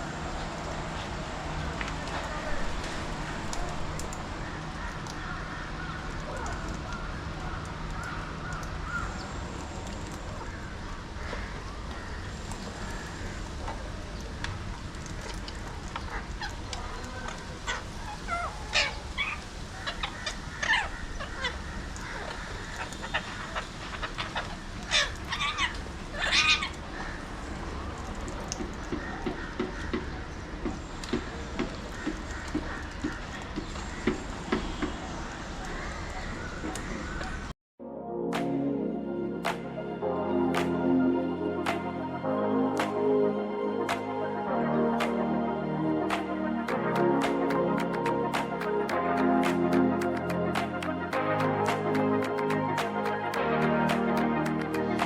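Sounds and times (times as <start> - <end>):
parakeets screeching: 15.0 - 27.3.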